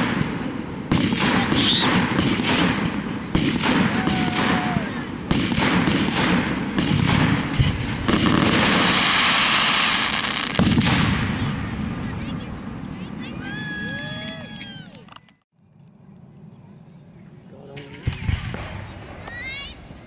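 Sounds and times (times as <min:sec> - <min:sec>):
firework shell bursts: 0:00.0 - 0:11.5
dense firework crackling: 0:00.0 - 0:14.8, 0:17.7 - 0:20.0.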